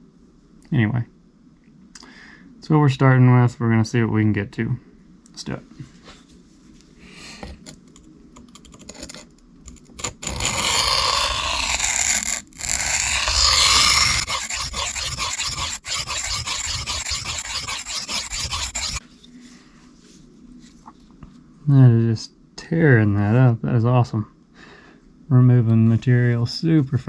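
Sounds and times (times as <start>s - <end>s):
knife scraping on sharpening plate: 10.3s - 19.0s.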